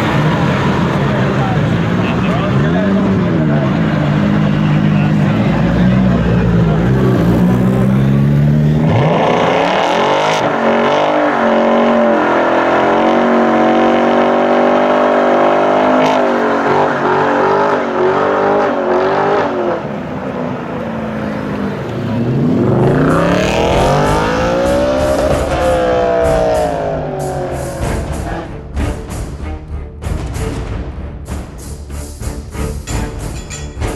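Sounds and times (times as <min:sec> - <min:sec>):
car engine revving hard: 0:00.0 - 0:20.0, 0:21.3 - 0:28.5.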